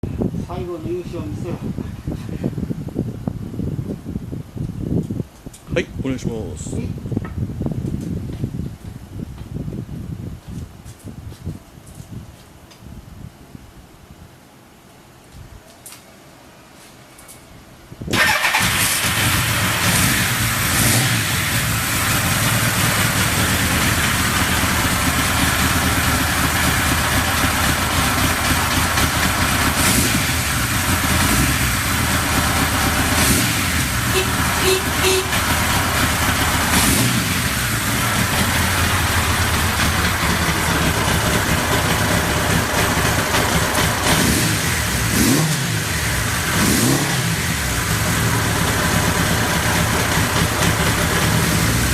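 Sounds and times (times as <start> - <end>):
engine revving: 18.2 - 51.9
motorcycle engine running: 18.2 - 51.9.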